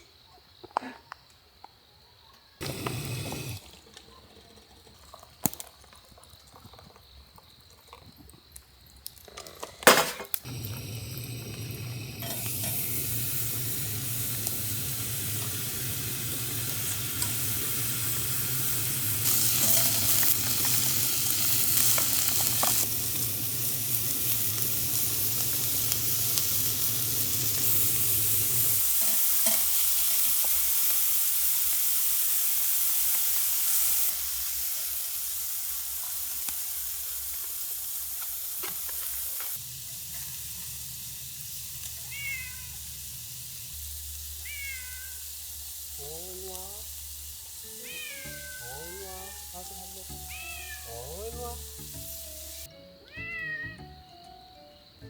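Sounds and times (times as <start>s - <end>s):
food sizzling in a pan: 2.6s - 9.1s, 9.9s - 52.7s
utensil clinking: 9.9s - 18.3s, 19.2s - 22.9s
stirring in a pan: 19.4s - 20.8s.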